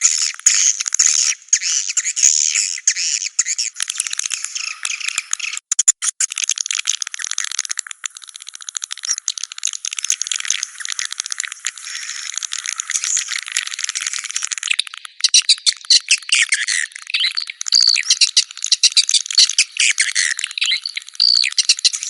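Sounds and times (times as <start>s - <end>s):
loud bird chirps: 0.1s - 5.6s, 14.7s - 22.0s.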